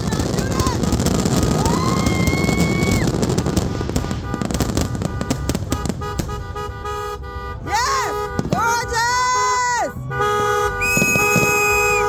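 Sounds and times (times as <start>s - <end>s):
fireworks crackling and banging: 0.0s - 12.0s
whistle-like tone: 10.7s - 12.0s.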